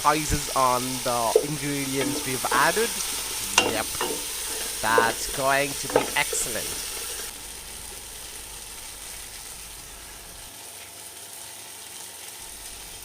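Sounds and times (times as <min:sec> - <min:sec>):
paste sizzling in a pan: 0:00.1 - 0:13.0.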